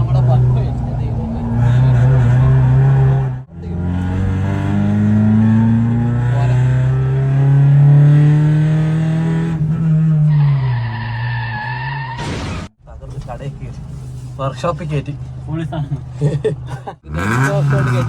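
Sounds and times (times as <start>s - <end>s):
race car engine under load: 12.2s - 18.0s.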